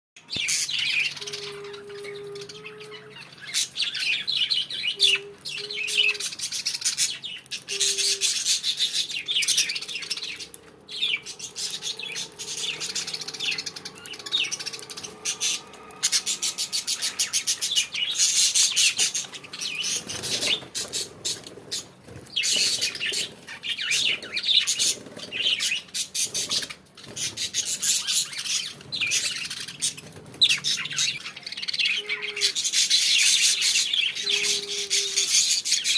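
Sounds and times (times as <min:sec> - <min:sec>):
budgerigars chirping: 0:00.4 - 0:35.9.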